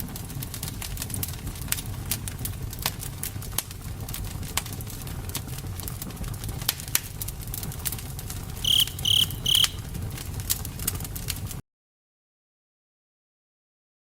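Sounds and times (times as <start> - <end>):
campfire crackling and popping: 0.0 - 11.6
short high chirps: 8.6 - 9.8.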